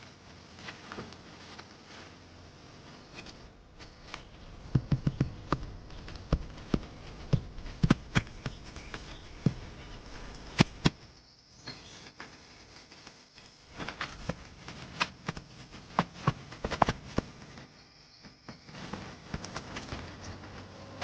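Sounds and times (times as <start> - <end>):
sharp knocks and taps: 4.4 - 11.0.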